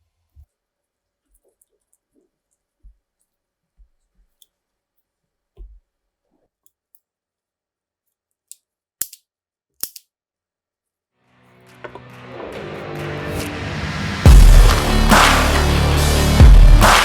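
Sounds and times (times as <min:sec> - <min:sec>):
taps and clicks of small parts: 0:08.1 - 0:10.1.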